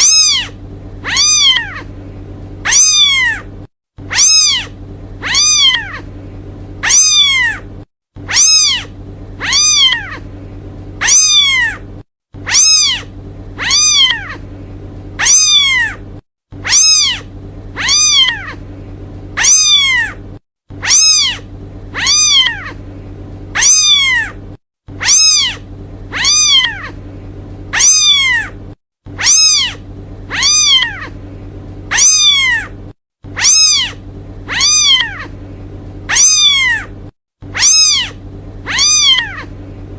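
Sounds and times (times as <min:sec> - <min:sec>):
kitten meowing: 0:00.0 - 0:01.9, 0:02.6 - 0:03.5, 0:04.1 - 0:06.1, 0:06.8 - 0:07.7, 0:08.3 - 0:10.3, 0:11.0 - 0:11.8, 0:12.4 - 0:14.4, 0:15.2 - 0:16.0, 0:16.6 - 0:18.6, 0:19.4 - 0:20.2, 0:20.8 - 0:22.8, 0:23.6 - 0:24.4, 0:25.0 - 0:27.0, 0:27.7 - 0:28.6, 0:29.2 - 0:31.2, 0:31.9 - 0:32.8, 0:33.4 - 0:35.4, 0:36.1 - 0:36.9, 0:37.5 - 0:39.5
low steady hum: 0:00.0 - 0:39.9.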